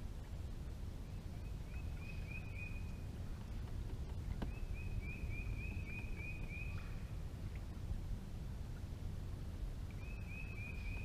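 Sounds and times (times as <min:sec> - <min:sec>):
low steady rumble: 0:00.0 - 0:11.0
songbird whistling: 0:01.8 - 0:02.9, 0:04.5 - 0:07.0, 0:10.0 - 0:11.0.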